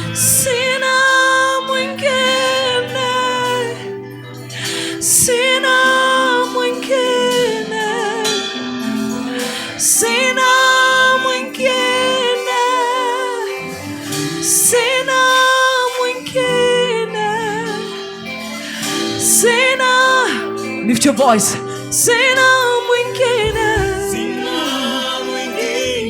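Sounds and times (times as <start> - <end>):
sustained instrumental chords: 0.0 - 26.0
woman singing with vibrato: 0.0 - 26.0.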